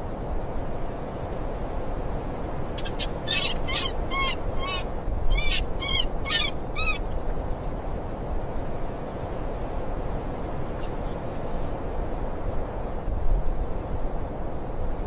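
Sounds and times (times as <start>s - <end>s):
wind: 0.0s - 15.0s
high-pitched animal calls: 2.8s - 7.0s.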